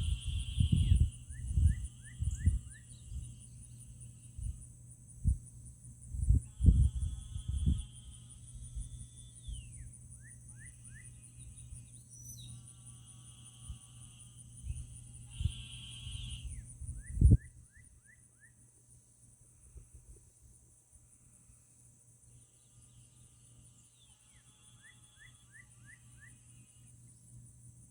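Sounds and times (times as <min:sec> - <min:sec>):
high insect drone: 0:00.0 - 0:27.9
frogs trilling: 0:15.3 - 0:18.5.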